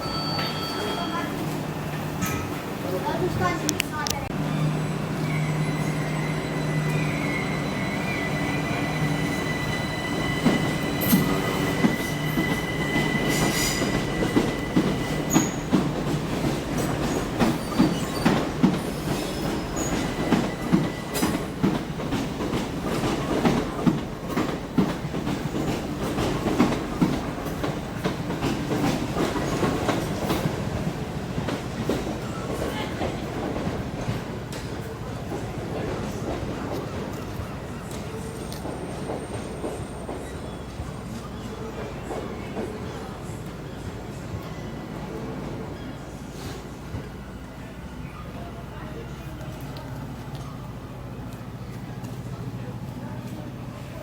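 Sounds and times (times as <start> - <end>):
train wheel squeal: 0.0 - 1.6, 4.5 - 21.9, 36.1 - 49.2.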